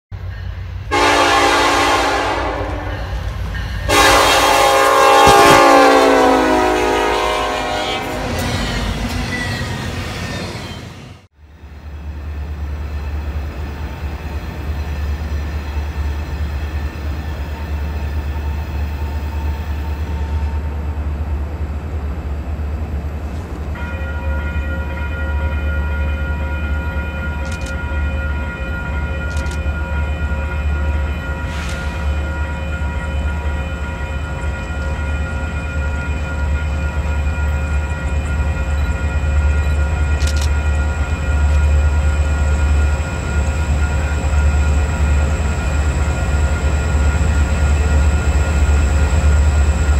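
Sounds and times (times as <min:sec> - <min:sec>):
diesel locomotive rumble: 0:00.1 - 0:23.8
multi-note horn chord: 0:00.9 - 0:02.9, 0:03.9 - 0:08.4
locomotive horn blasts: 0:00.9 - 0:03.2, 0:03.9 - 0:08.4.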